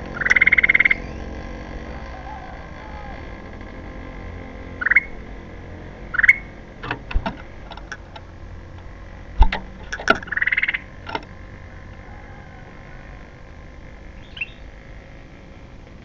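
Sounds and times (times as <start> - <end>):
bird chirping: 0.0 - 1.4, 4.7 - 5.2, 6.1 - 6.5, 9.8 - 10.9, 14.1 - 14.8
bird rattle call: 0.1 - 1.3, 4.8 - 5.2, 6.1 - 6.5, 9.4 - 11.2, 14.2 - 14.8.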